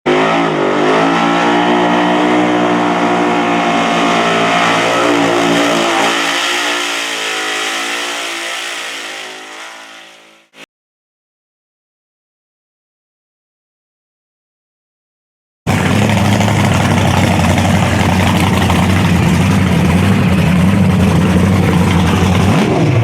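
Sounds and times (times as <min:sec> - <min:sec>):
car engine revving hard: 0:00.1 - 0:10.6, 0:15.7 - 0:23.0.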